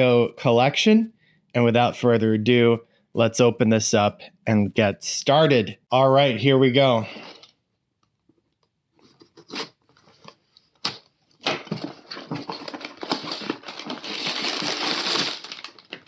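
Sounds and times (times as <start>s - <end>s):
plastic bags rustling and crinkling: 11.6s - 16.0s.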